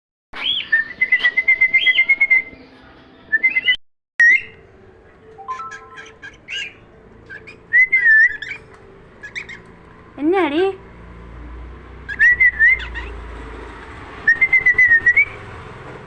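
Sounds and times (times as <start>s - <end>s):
pet bird whistling and chirping: 0.4s - 2.6s, 3.3s - 4.6s, 5.4s - 9.7s, 12.1s - 13.2s, 14.2s - 15.4s.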